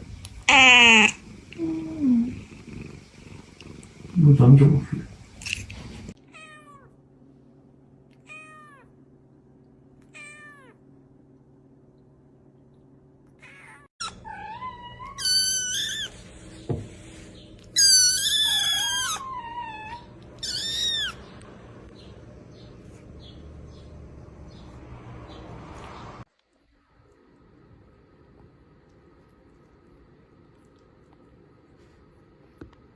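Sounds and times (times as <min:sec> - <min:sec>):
cat meowing: 0:00.5 - 0:01.9, 0:08.2 - 0:08.9, 0:10.1 - 0:10.8, 0:13.4 - 0:16.2, 0:17.8 - 0:21.2.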